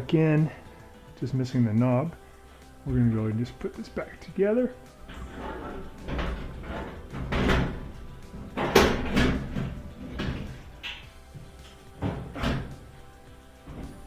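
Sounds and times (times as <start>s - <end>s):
plastic panel clunking: 5.0s - 14.0s.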